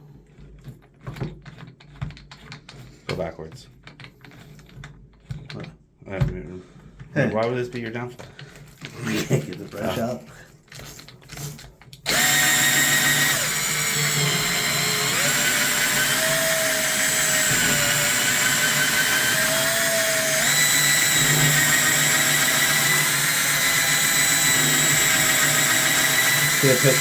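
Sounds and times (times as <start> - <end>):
power tool spinning a brush: 11.3 - 27.0.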